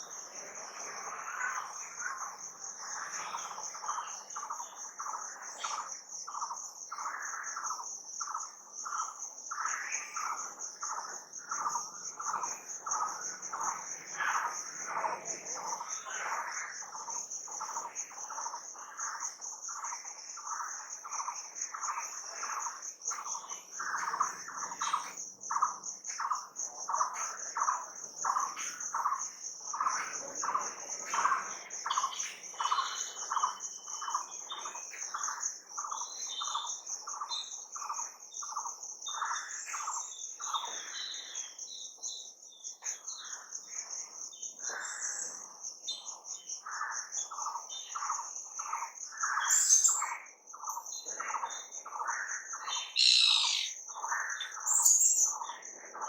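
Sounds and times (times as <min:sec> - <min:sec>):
high insect trill: 0:00.0 - 0:56.0
birds chirping: 0:44.5 - 0:56.0.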